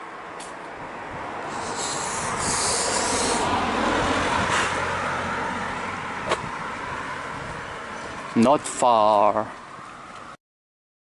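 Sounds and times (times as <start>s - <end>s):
vehicle passing: 0.1s - 10.4s
short high hiss: 1.5s - 3.5s.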